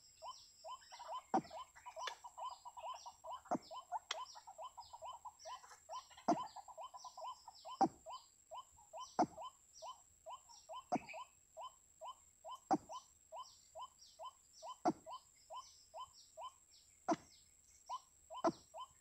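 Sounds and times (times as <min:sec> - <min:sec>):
thin high bird chirps: 0:00.0 - 0:19.0.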